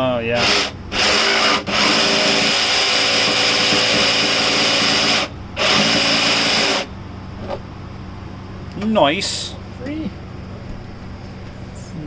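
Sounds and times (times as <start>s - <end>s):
jigsaw cutting countertop: 0.4s - 6.9s.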